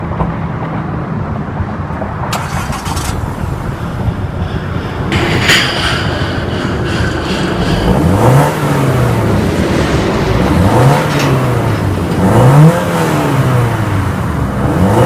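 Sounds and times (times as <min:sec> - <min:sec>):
car engine running: 0:02.3 - 0:15.0
hiss: 0:02.4 - 0:11.9.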